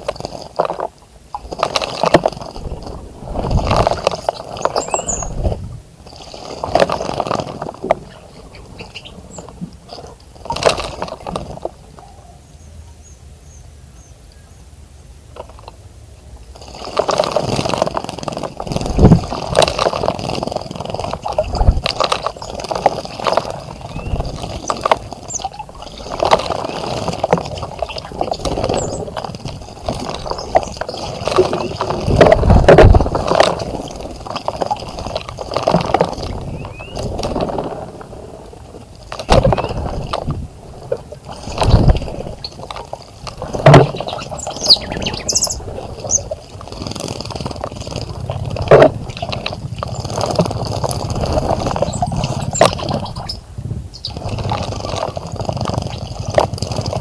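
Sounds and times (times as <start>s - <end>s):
birds splashing water: 0.0s - 12.2s, 15.3s - 57.0s
faint high bird chirps: 4.1s - 5.4s, 8.0s - 9.5s, 12.0s - 14.7s, 23.8s - 26.1s, 36.5s - 37.0s, 43.8s - 46.3s.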